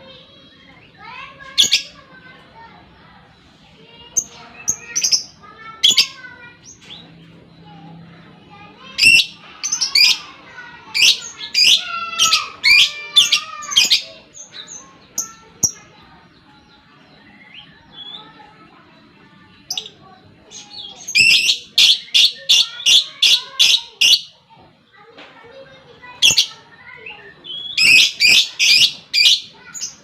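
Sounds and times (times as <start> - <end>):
bird chirps: 26.2 - 30.0
lovebird chattering calls: 27.5 - 30.0.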